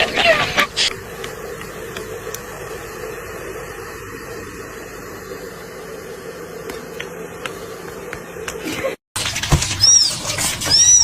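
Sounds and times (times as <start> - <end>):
low hum: 0.6 - 9.0
steady hiss: 0.7 - 8.4.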